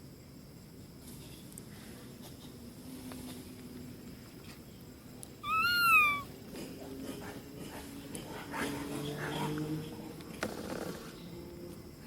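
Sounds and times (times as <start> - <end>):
monkey high call: 5.4 - 6.3.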